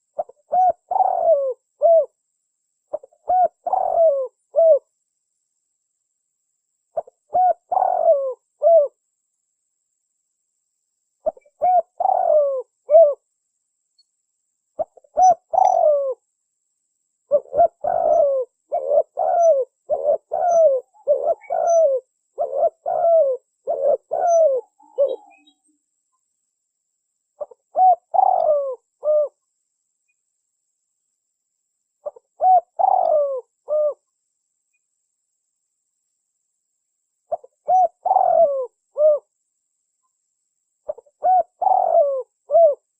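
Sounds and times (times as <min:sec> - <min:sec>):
dove cooing: 0:00.0 - 0:02.2, 0:02.9 - 0:04.9, 0:07.0 - 0:09.0, 0:11.2 - 0:13.2, 0:14.8 - 0:16.2, 0:17.3 - 0:25.6, 0:27.4 - 0:29.4, 0:32.0 - 0:34.0, 0:37.3 - 0:39.3, 0:40.9 - 0:42.9.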